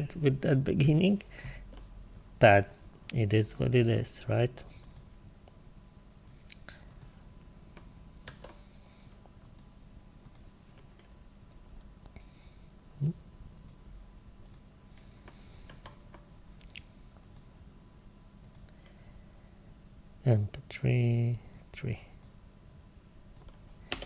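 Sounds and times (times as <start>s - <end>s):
computer mouse clicks: 4.8s - 5.1s, 6.2s - 7.2s, 7.8s - 8.6s, 9.4s - 11.1s, 13.6s - 13.8s, 14.4s - 14.6s, 15.2s - 17.5s, 18.4s - 18.8s.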